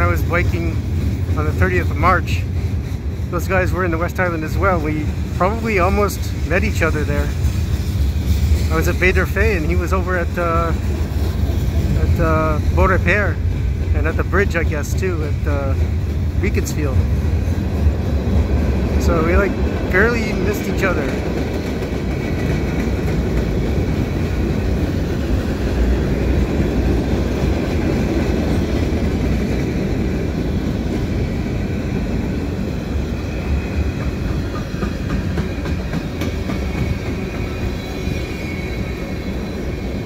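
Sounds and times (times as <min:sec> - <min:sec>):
train wheels rumbling on rail: 0:00.0 - 0:40.0
faint wheel squeal: 0:36.5 - 0:40.0.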